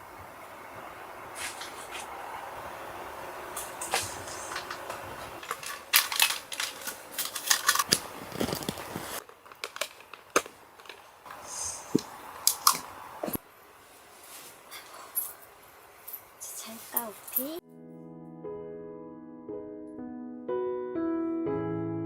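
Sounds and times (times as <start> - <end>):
steady hiss: 0.0 - 5.4, 11.2 - 17.6
objects rustling and clicking: 3.6 - 13.4.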